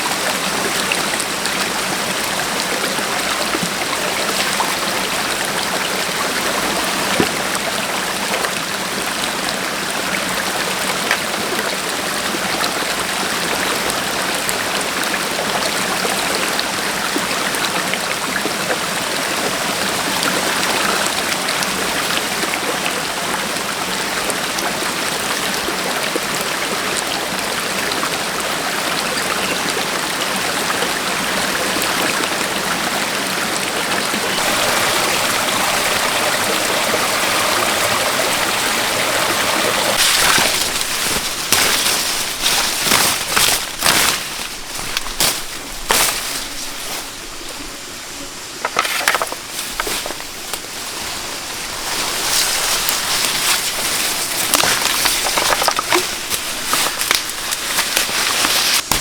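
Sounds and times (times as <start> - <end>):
stream water flowing: 0.0 - 59.0
small knocks: 48.6 - 50.2, 54.5 - 59.0.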